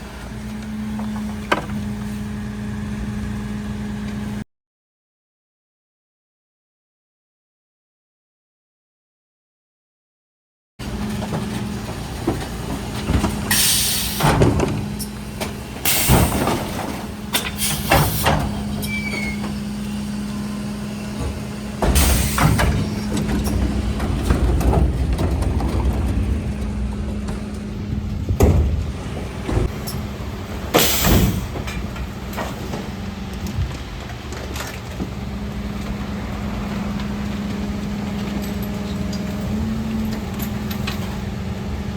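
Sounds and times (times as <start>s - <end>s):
truck engine humming: 0.0s - 4.4s, 10.8s - 41.9s
air hisses and clunks: 13.3s - 19.6s, 21.8s - 23.6s, 30.8s - 32.6s.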